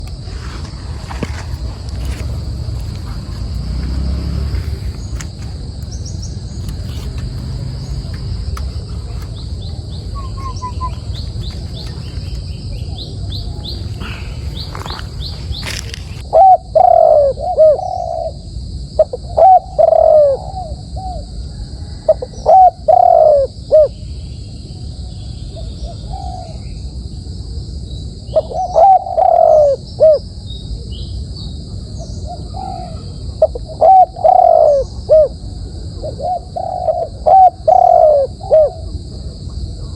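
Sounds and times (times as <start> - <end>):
small birds chirping: 0.0 - 18.3
dove cooing: 0.0 - 23.9, 28.4 - 30.3, 32.0 - 39.9.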